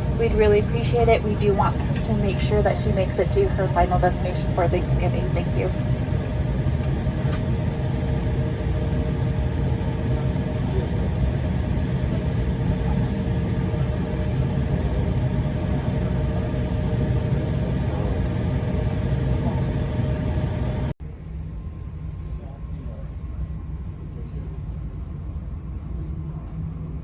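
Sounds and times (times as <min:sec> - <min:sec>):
airliner cabin rumble: 0:00.0 - 0:21.0
faint steady hum: 0:00.0 - 0:27.0.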